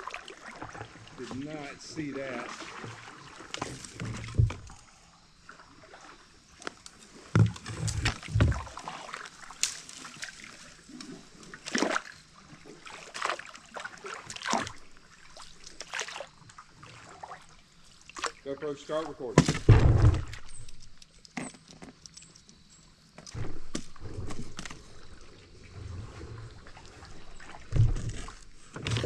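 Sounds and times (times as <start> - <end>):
paddle splashing in water: 0.0 - 4.7, 5.5 - 21.1, 23.4 - 29.0
dull knocks: 19.4 - 20.5.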